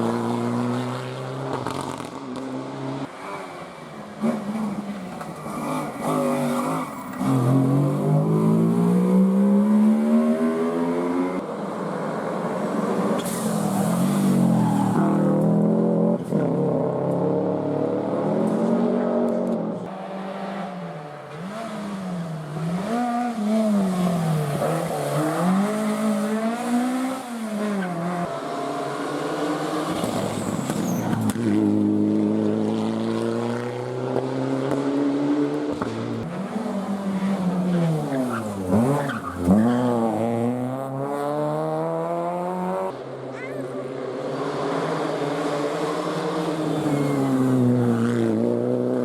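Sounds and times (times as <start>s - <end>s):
rally car engines revving: 0.0s - 49.0s
tyre squeal: 29.9s - 31.2s, 46.7s - 47.5s.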